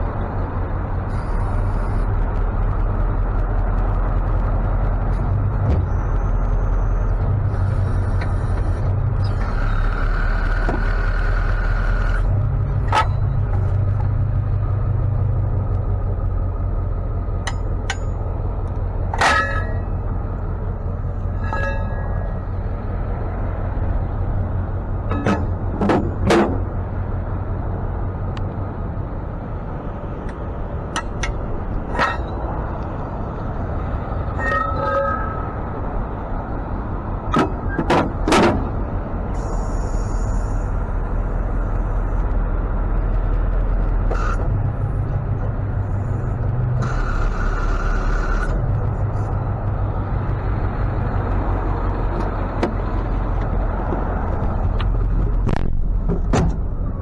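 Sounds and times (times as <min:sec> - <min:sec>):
truck engine running: 0:00.0 - 0:57.0
metallic clanks and knocks: 0:12.8 - 0:14.1, 0:17.4 - 0:18.4, 0:19.1 - 0:20.2, 0:25.0 - 0:26.8, 0:30.2 - 0:32.9, 0:37.3 - 0:38.9, 0:52.0 - 0:57.0.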